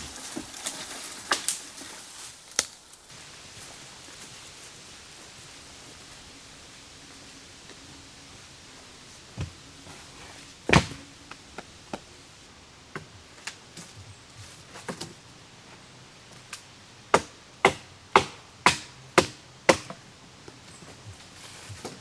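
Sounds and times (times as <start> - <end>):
firewood chopping strikes: 10.7 - 12.1, 17.1 - 20.0.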